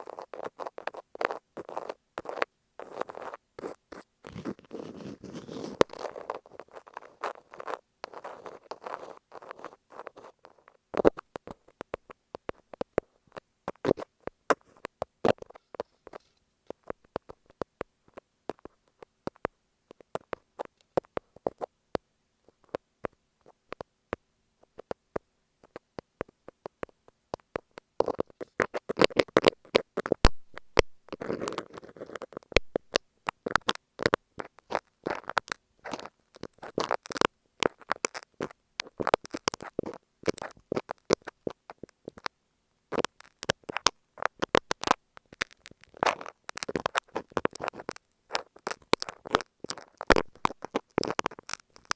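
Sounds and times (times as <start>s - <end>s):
metal tips scratching tape on mic: 0.0s - 21.6s, 42.9s - 51.9s.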